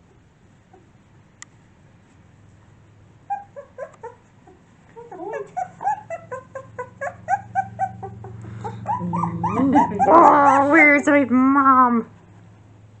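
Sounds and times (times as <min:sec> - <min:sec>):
puppy whimpering and crying: 0:03.3 - 0:11.1.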